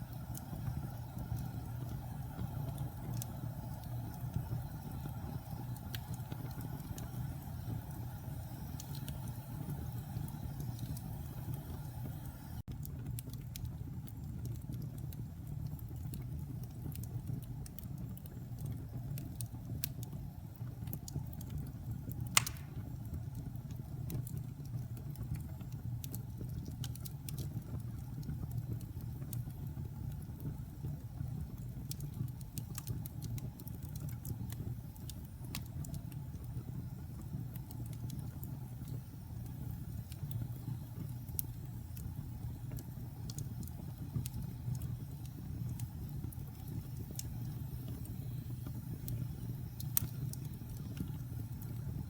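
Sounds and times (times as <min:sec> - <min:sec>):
wood fire rumbling and crackling: 0:00.0 - 0:52.0
loud fire pop: 0:22.4 - 0:22.9.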